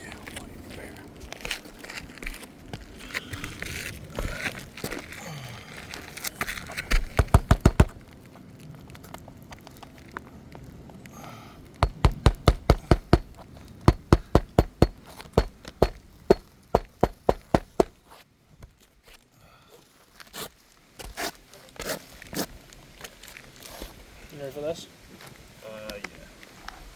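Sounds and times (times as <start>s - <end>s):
hammer driving nails into shingles: 6.9s - 8.0s, 11.8s - 18.0s.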